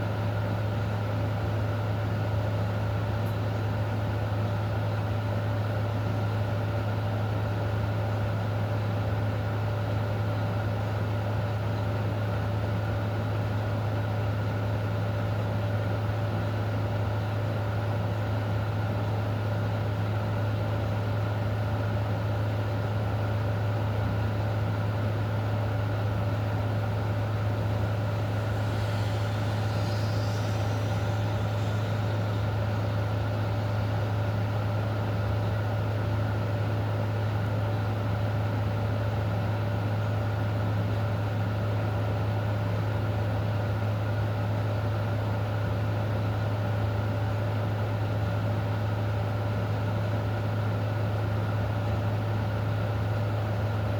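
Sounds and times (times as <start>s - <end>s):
low mechanical hum: 0.0s - 53.9s
rain hiss: 26.9s - 34.0s
faint high warbling: 27.5s - 33.2s.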